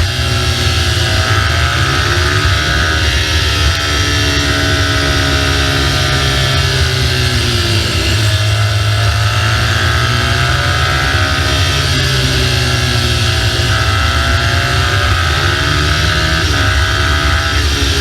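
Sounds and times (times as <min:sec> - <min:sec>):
motorcycle engine running: 0:00.0 - 0:18.0
wind and road noise: 0:00.0 - 0:18.0.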